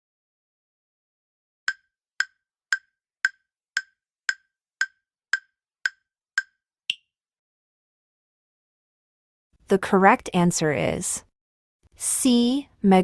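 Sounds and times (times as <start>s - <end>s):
countdown timer ticks: 1.7s - 7.0s.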